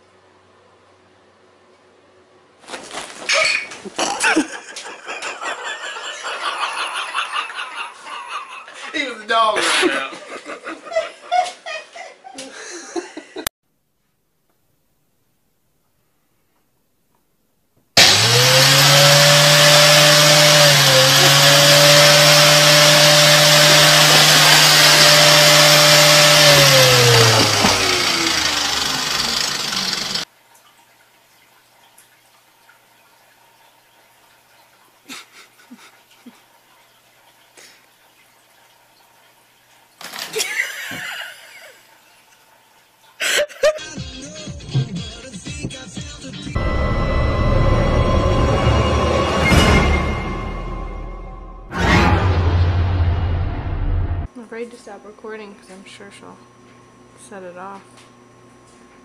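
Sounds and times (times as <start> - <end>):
electric motor humming: 18.0 - 30.2.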